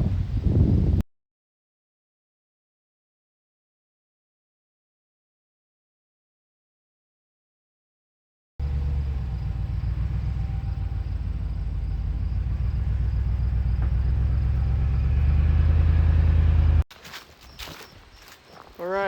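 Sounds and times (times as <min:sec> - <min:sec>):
truck engine rumbling: 0:08.6 - 0:16.9.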